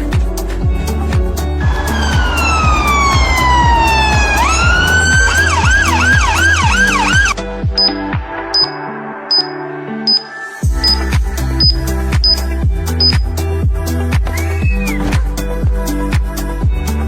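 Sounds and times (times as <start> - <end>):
music with thudding beat: 0.0 - 8.7, 10.6 - 16.9
siren wailing and yelping: 1.7 - 7.4.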